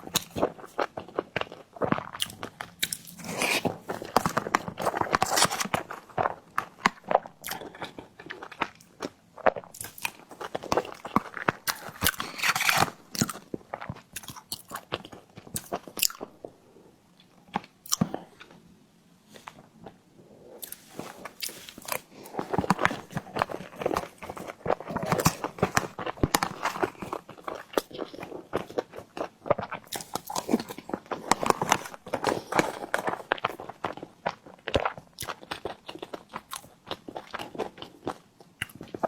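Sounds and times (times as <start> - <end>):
crunching bites: 9.7 - 16.3, 20.6 - 39.0.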